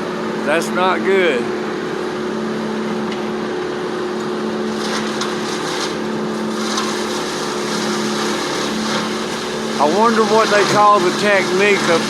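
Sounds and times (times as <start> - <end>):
wood chipper drone: 0.0 - 12.0
wood cracking and splintering: 4.8 - 12.0.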